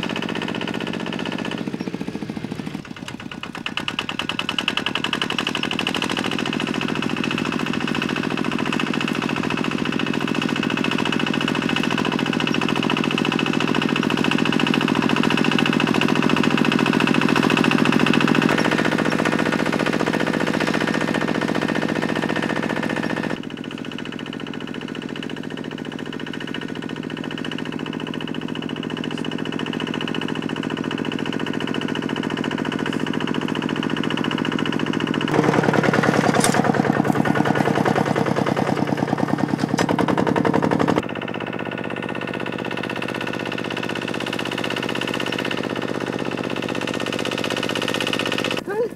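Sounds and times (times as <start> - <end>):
small engine chugging: 0.0 - 48.9.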